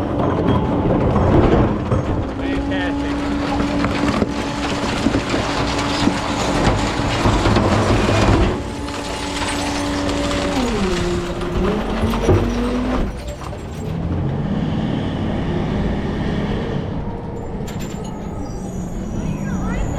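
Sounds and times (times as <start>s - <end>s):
crunching and clattering: 0.0s - 14.4s
truck engine and hydraulic whine: 0.0s - 19.9s.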